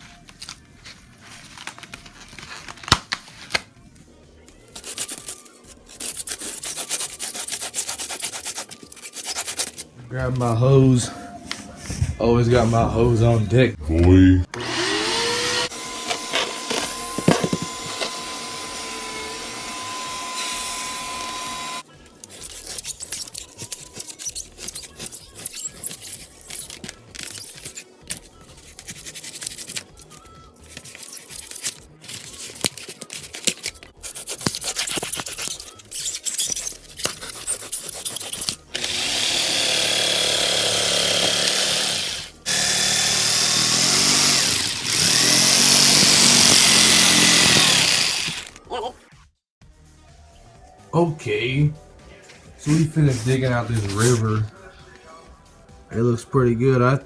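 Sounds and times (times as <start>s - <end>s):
power tool whine: 14.5s - 21.8s, 38.7s - 48.6s
vacuum humming through hose: 14.5s - 21.8s, 38.8s - 48.6s.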